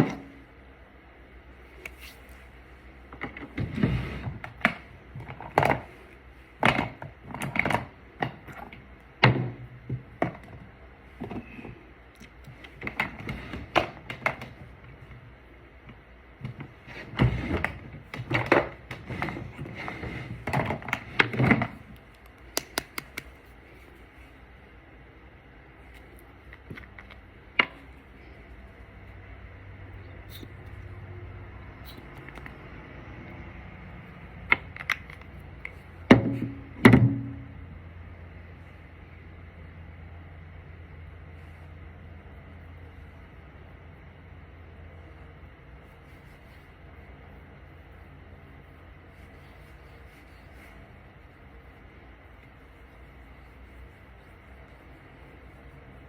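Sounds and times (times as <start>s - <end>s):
small containers clicking and tapping: 20.6s - 23.4s, 34.4s - 35.8s.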